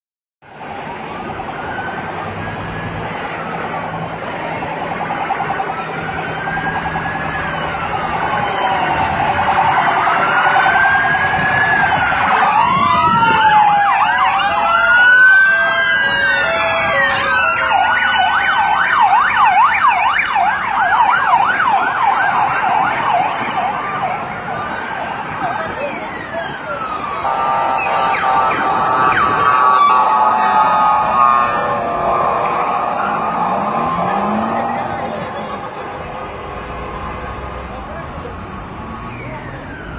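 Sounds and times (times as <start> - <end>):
police sirens wailing: 0.5 - 39.9
siren fast yelp: 5.0 - 36.0.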